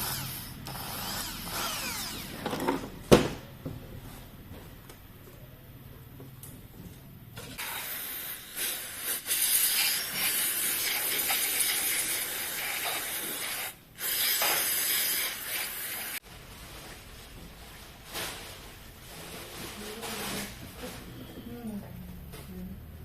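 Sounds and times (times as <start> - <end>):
pressurised spray hissing: 7.6 - 16.2.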